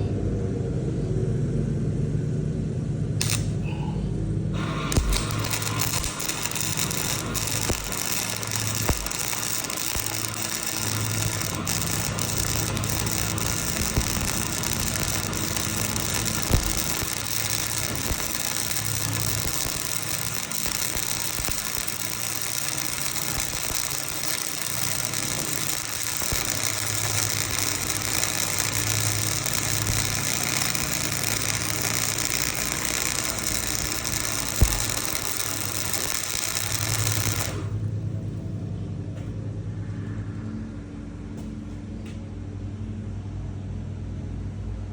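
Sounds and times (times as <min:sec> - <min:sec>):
strong hiss: 0:04.6 - 0:37.7
motor humming: 0:04.6 - 0:37.9.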